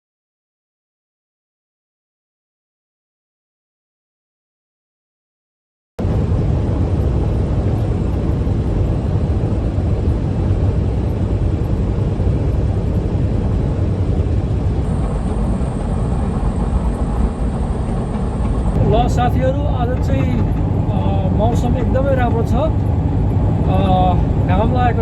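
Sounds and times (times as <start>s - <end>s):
truck engine and road noise: 6.0s - 25.0s.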